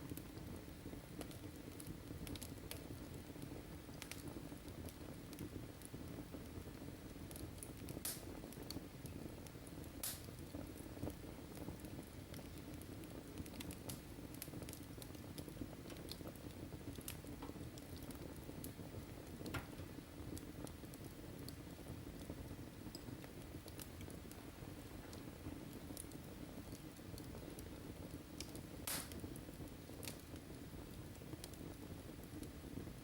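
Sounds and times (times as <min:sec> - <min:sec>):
fire crackling and popping: 0:00.0 - 0:33.0
low rumble of flames: 0:00.0 - 0:33.0.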